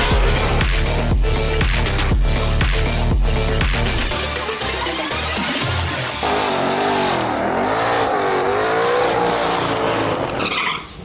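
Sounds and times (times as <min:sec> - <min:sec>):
car engine revving hard: 0:06.2 - 0:10.6.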